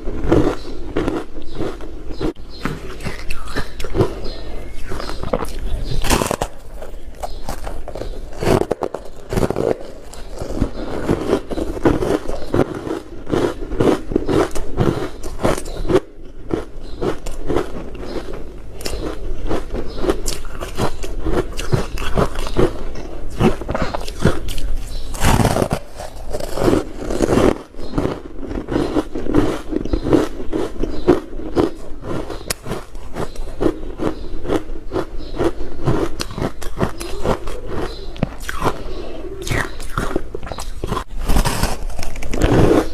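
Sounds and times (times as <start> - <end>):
person crunching ice: 0.0 - 42.9.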